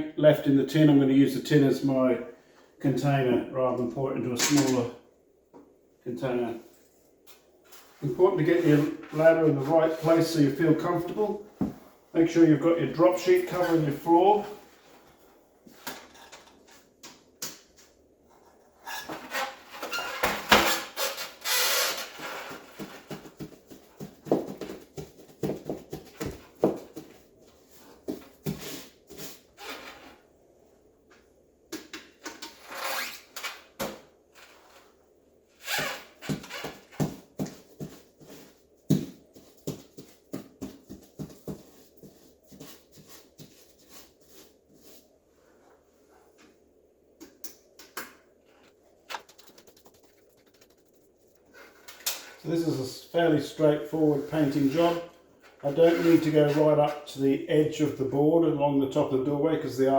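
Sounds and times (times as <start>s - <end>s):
knocks and clicks: 49.1s - 51.4s.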